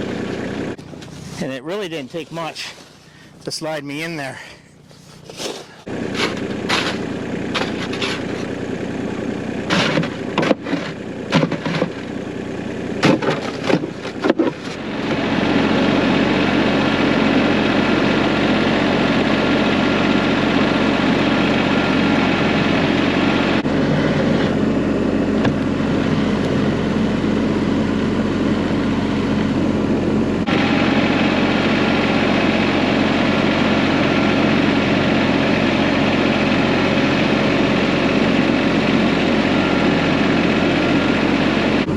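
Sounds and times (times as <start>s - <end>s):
vehicle engine running: 0.0s - 41.9s
knocks and clatter: 9.7s - 12.0s, 13.0s - 14.8s.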